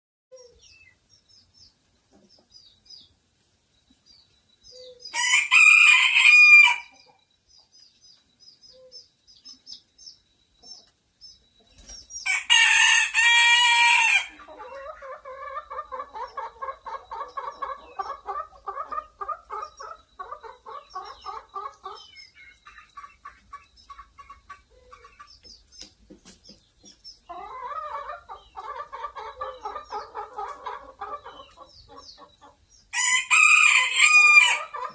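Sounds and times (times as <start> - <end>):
chicken clucking: 1.6 - 3.2, 10.6 - 34.9
rooster crowing: 5.1 - 6.9, 12.3 - 14.4, 33.0 - 34.9
faint high chirps: 6.9 - 12.3.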